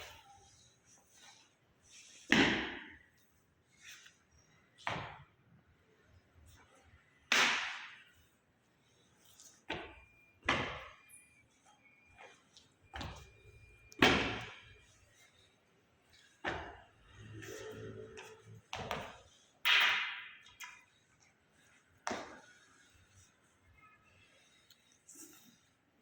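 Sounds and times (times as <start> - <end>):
wooden staff knocks and thuds: 2.3 - 2.9, 13.9 - 14.6.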